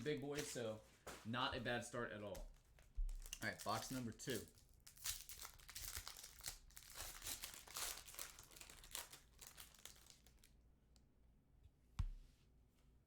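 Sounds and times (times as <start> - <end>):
plastic wrapping crinkling and tearing: 2.5 - 10.6.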